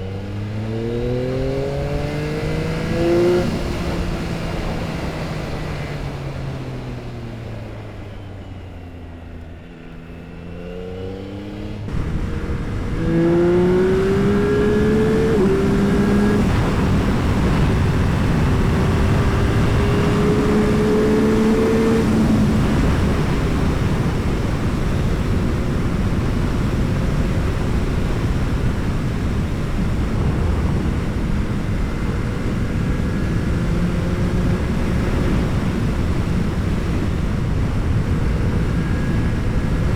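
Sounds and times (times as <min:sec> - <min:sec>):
motorcycle engine revving: 0:00.0 - 0:06.4, 0:09.6 - 0:39.9
wind rush: 0:11.9 - 0:39.9.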